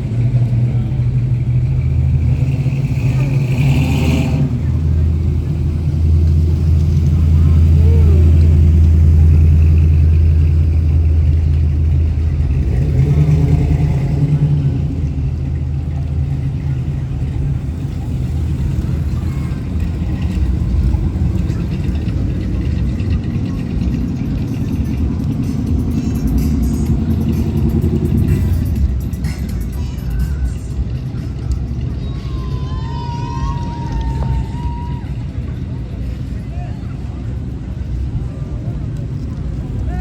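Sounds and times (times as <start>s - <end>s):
vehicle engine rumbling: 0.0s - 40.0s
background voices: 4.3s - 32.6s
background music: 24.2s - 34.5s.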